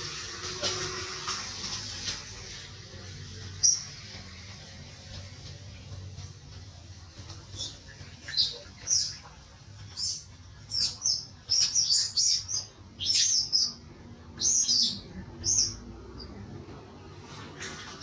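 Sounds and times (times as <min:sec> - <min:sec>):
small birds chirping: 0:03.5 - 0:04.1, 0:07.2 - 0:16.5.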